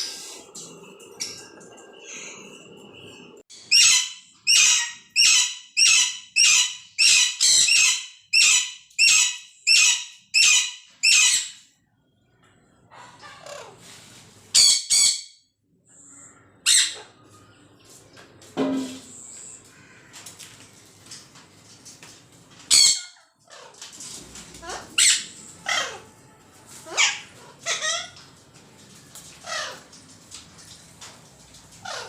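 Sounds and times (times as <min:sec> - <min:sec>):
parrot high calls: 0:03.6 - 0:11.6, 0:24.6 - 0:26.1, 0:26.8 - 0:28.2, 0:29.4 - 0:29.8, 0:31.8 - 0:32.0.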